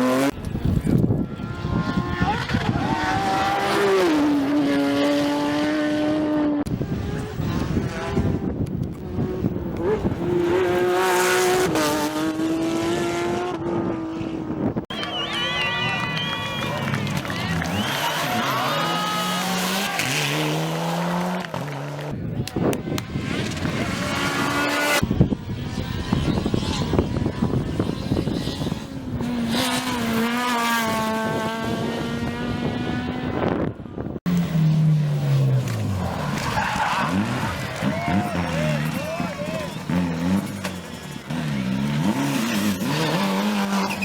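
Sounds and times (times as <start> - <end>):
rally car engine at high revs: 0.0 - 14.8, 17.4 - 44.0
engine crackling and popping: 35.2 - 44.0.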